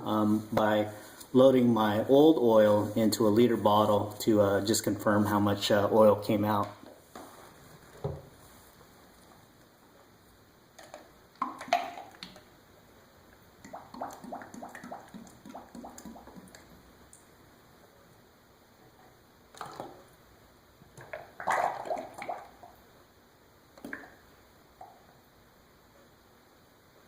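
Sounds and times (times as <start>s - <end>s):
oil glugging and splashing: 19.5s - 20.1s, 21.0s - 22.7s.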